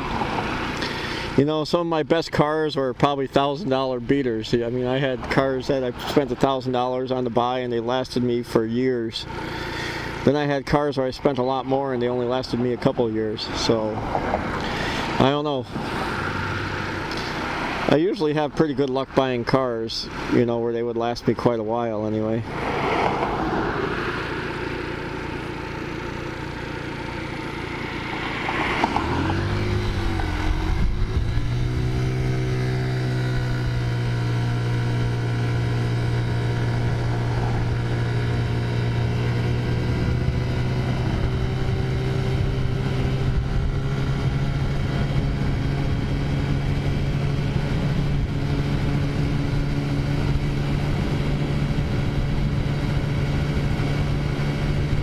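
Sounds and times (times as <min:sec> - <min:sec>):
scooter engine accelerating: 0:00.0 - 0:01.8, 0:09.1 - 0:12.8, 0:13.4 - 0:19.4, 0:22.4 - 0:55.0.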